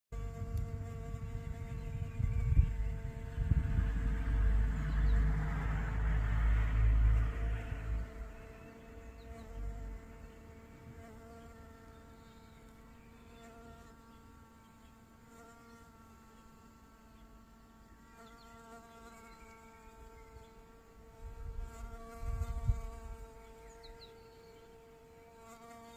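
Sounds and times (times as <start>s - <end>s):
insect wings buzzing: 0.2s - 5.2s, 7.8s - 25.9s
low rumble: 0.3s - 11.1s.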